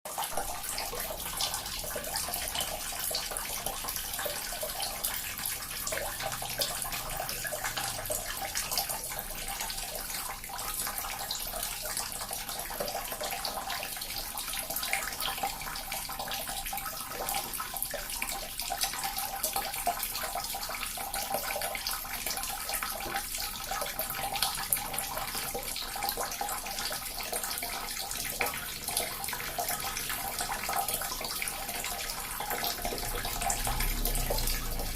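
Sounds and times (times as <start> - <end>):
water fountain splashing: 0.1 - 34.9.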